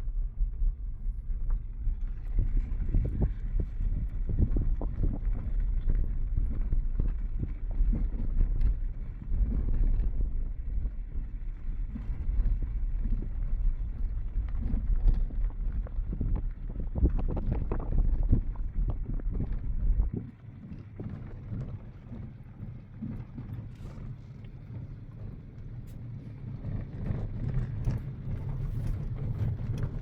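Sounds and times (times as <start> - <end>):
wind on microphone: 0.0 - 30.0.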